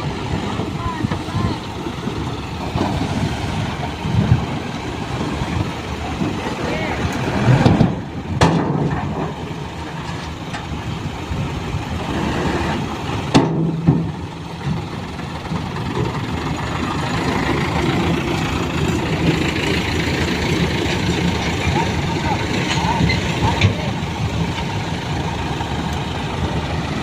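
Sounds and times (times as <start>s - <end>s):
diesel truck engine running: 0.0s - 27.0s.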